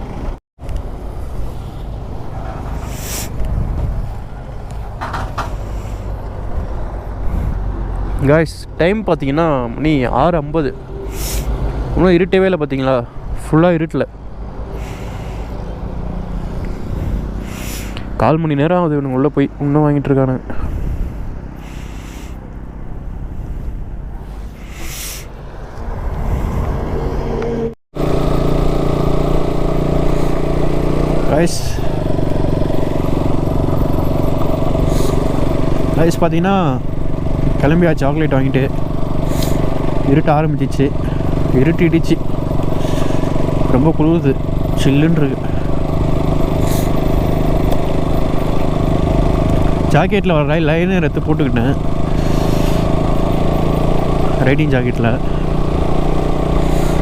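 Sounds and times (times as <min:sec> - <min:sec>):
road vehicle rumble: 0:00.0 - 0:57.0
motorcycle engine running: 0:08.1 - 0:13.2, 0:14.2 - 0:18.7, 0:20.5 - 0:24.8, 0:28.0 - 0:57.0.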